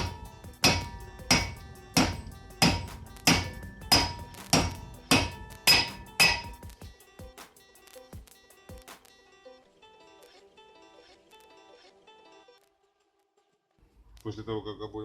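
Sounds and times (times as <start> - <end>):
hammer striking metal: 0.0 - 6.9.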